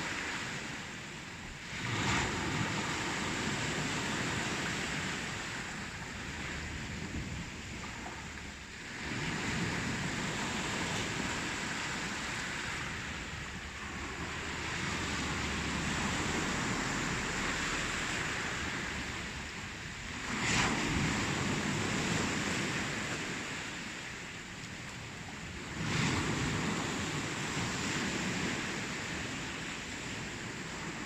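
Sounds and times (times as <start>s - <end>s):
ocean waves washing in: 0.0s - 31.0s
wave crash: 20.1s - 23.5s.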